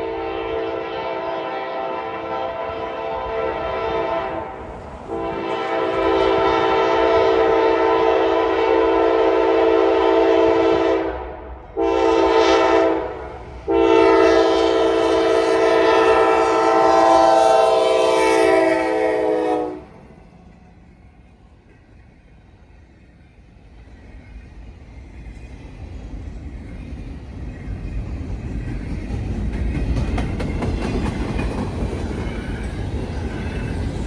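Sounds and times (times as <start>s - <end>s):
locomotive air horn blasts: 0.0s - 20.0s.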